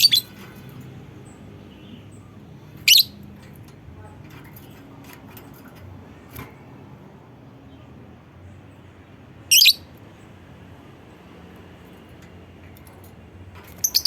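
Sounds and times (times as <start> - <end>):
bird shrill chirp: 0.0 - 0.4, 2.8 - 3.2, 9.5 - 9.9, 13.8 - 14.0
faint background noise: 0.0 - 14.0.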